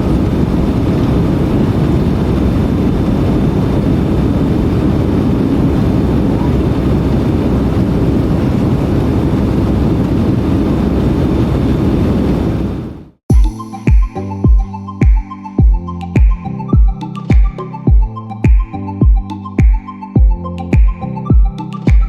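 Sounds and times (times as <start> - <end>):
airplane cabin engine and airflow noise: 0.0 - 13.1.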